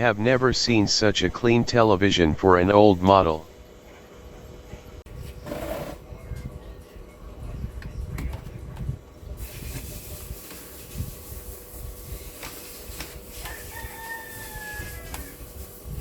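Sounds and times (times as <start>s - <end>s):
steady hiss: 9.4s - 13.8s
rooster crowing: 13.3s - 15.5s.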